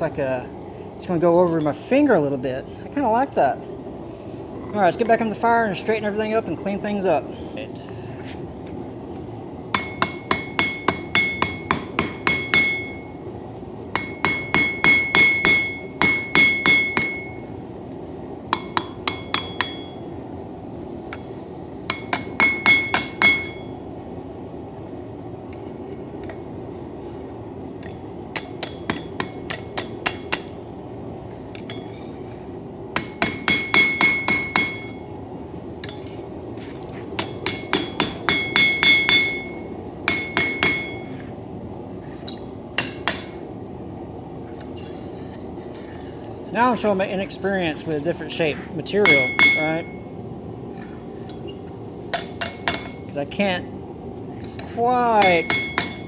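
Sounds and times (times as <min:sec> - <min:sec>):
hammer ringing on anvil: 0:09.8 - 0:13.2, 0:14.0 - 0:17.5, 0:18.5 - 0:20.1, 0:21.9 - 0:23.8, 0:28.4 - 0:30.6, 0:33.0 - 0:35.1, 0:37.2 - 0:41.2, 0:42.8 - 0:43.4, 0:49.0 - 0:50.2, 0:52.1 - 0:53.1, 0:55.2 - 0:56.0.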